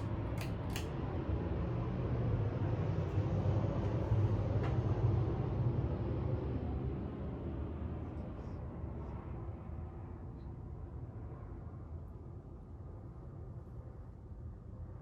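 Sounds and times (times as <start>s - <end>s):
fan pull chain clicks: 0.0s - 1.0s
ceiling fan motor hum: 0.0s - 8.0s.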